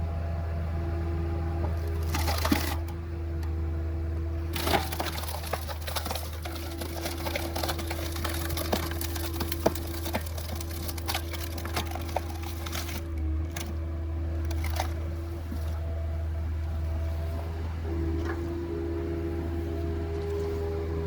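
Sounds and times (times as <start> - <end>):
loader engine humming: 0.0 - 21.0
firewood log cracking and splintering: 1.8 - 3.0, 4.5 - 15.8.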